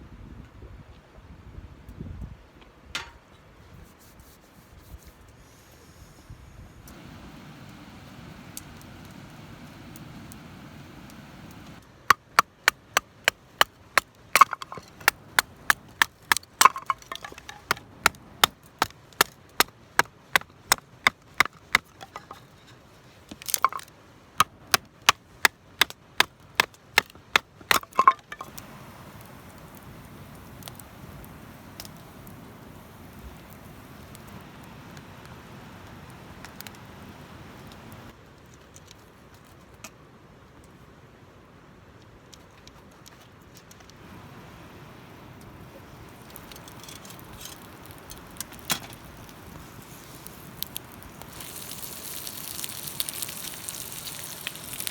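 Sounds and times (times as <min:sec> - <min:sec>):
firewood being chopped: 0:06.9 - 0:22.5, 0:23.3 - 0:35.0, 0:46.0 - 0:54.9.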